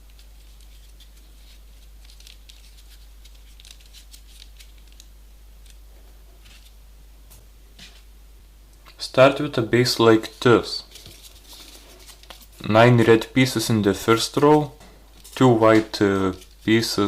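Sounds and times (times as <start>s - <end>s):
paper rustling and clicking: 0.0s - 5.8s, 10.9s - 12.7s, 14.4s - 17.0s
faint low hum: 0.0s - 17.0s.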